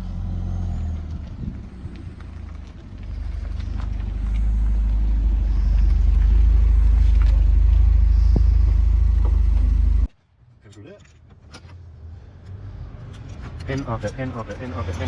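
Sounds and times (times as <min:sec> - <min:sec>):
car rumbling while moving: 0:00.0 - 0:15.0.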